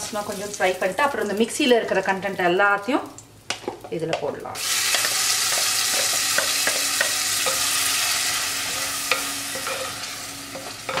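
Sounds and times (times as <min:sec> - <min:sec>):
paste sizzling in hot oil: 0:04.6 - 0:11.0.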